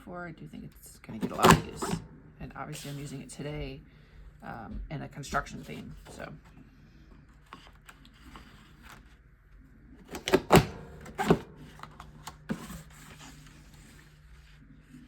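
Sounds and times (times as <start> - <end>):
paper punch clunking: 1.2 - 2.1, 10.1 - 13.0.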